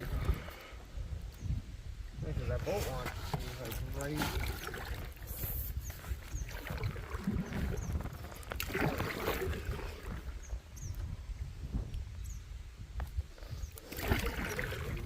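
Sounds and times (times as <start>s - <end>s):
wind rumble on microphone: 0.0s - 15.0s
paddles splashing in water: 2.7s - 10.7s, 13.7s - 15.0s.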